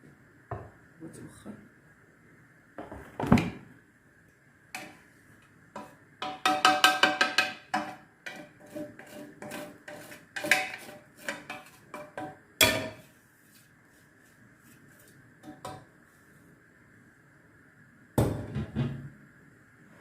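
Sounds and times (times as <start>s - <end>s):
cookware clinking: 5.8s - 8.5s, 10.4s - 13.0s.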